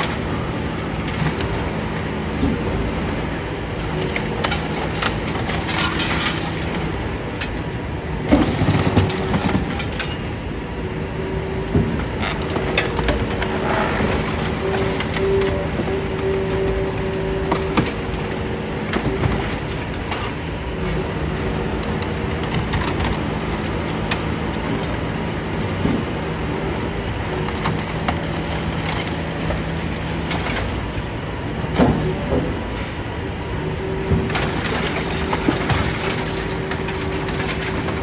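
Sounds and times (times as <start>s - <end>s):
machine humming: 0.0s - 38.0s
metal knocking and clanking: 11.6s - 26.3s.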